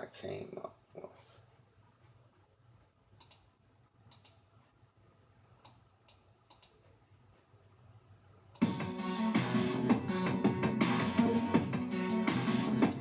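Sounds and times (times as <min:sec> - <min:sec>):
computer mouse clicks: 0:03.2 - 0:03.5, 0:04.1 - 0:04.5, 0:05.6 - 0:06.8
loud music track: 0:08.6 - 0:13.0.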